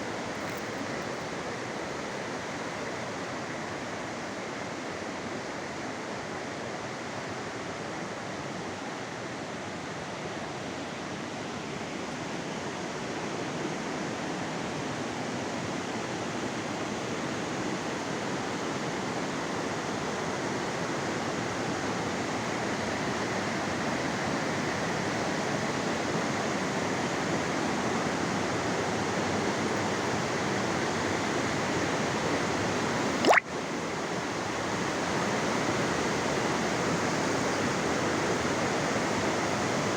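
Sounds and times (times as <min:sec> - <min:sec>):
rushing water: 0:33.2 - 0:33.5.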